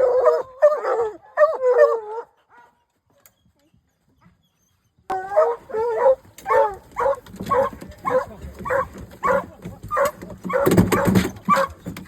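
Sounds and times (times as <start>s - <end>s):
hound barking: 0.0s - 2.8s, 5.1s - 11.8s.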